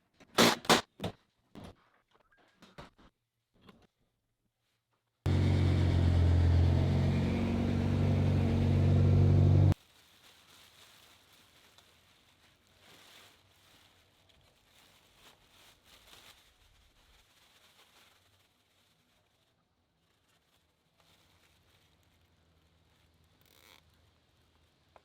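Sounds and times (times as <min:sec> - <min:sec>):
car engine running: 0:05.3 - 0:09.8.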